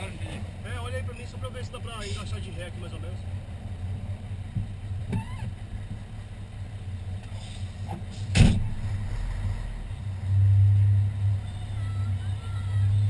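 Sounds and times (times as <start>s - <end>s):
diesel engine rumbling: 0.0s - 13.0s
sharp clunk: 7.2s - 9.0s.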